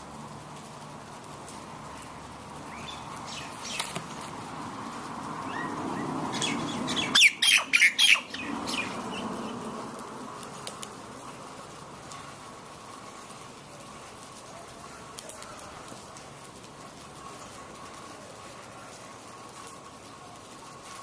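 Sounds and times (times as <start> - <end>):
outdoor hiss: 0.0 - 21.0
bird calling: 2.7 - 4.2, 5.5 - 9.7.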